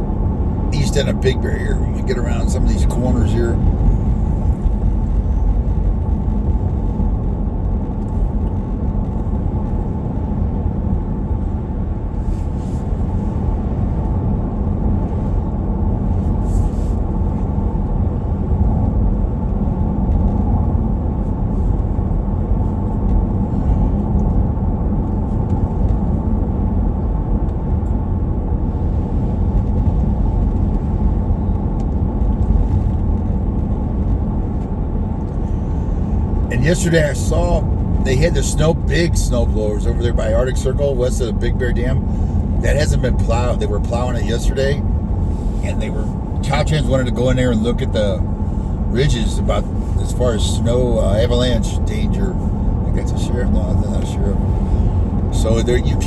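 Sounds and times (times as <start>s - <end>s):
vehicle engine and tyre rumble: 0.0s - 56.0s.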